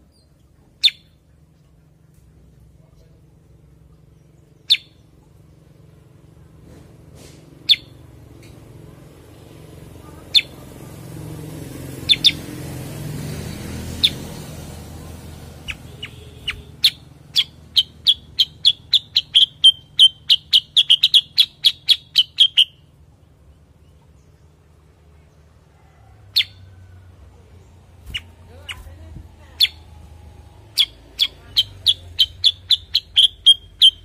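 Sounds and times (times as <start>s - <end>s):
songbird chirping: 0.0s - 34.0s.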